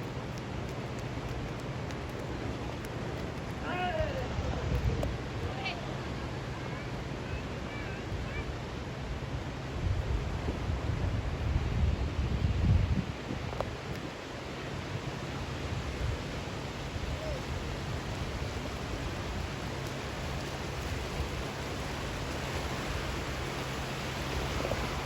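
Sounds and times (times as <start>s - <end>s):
surging water rushing: 0.0s - 25.0s
wind rumbling on microphone: 0.0s - 25.0s.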